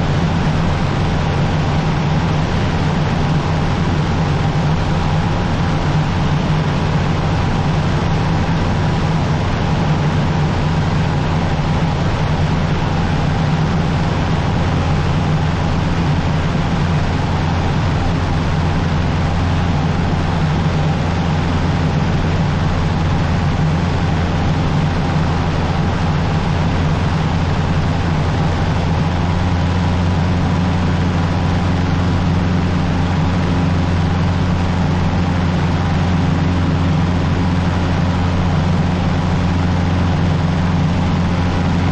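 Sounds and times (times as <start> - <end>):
aircraft engine and propeller droning: 0.0 - 41.9.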